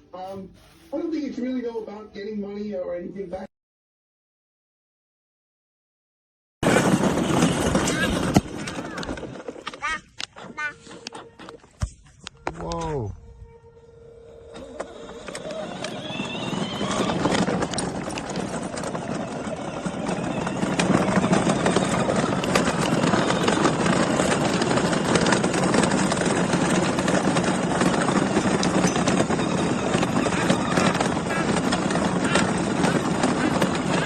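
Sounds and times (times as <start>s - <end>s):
plastic wheels rattling: 6.6s - 11.8s, 14.6s - 34.0s.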